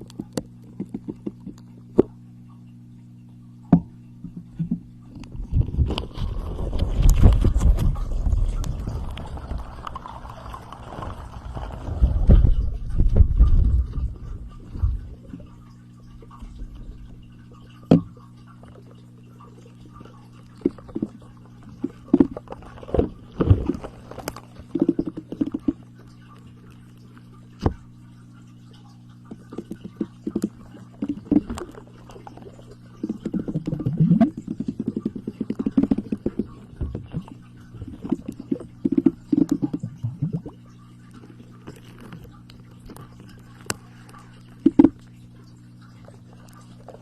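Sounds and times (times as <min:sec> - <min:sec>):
faint electrical hum: 0:00.0 - 0:47.0.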